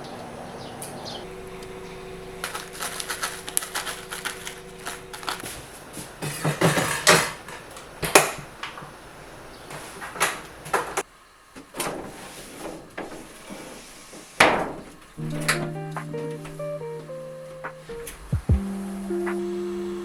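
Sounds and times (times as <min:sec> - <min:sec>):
objects knocking and clattering: 0:06.2 - 0:08.4
music: 0:15.2 - 0:20.0.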